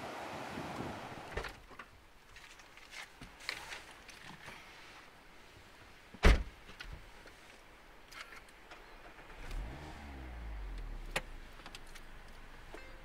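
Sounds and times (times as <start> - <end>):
car door shutting: 6.2 - 6.5
car engine starting and idling: 8.9 - 13.0.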